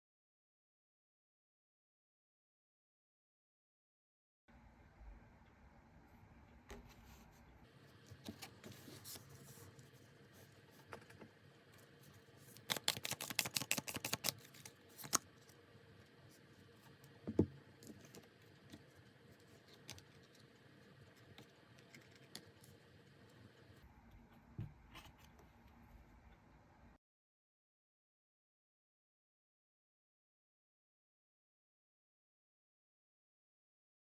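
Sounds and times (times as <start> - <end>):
cards shuffling: 12.4 - 15.3
cards tapping and clicking: 12.6 - 15.2.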